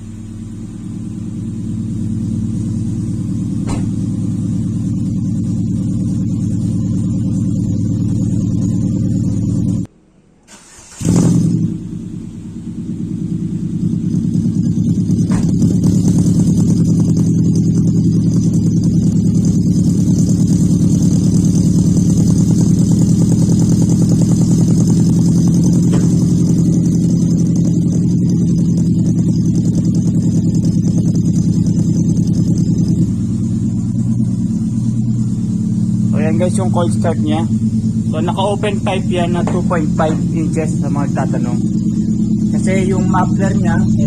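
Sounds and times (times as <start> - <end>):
car engine cold starting: 10.4 - 14.4, 18.6 - 44.0.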